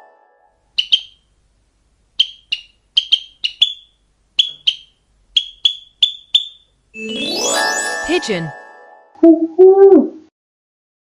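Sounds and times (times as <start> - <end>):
sparrow chirping: 0.7 - 1.3, 2.1 - 6.8.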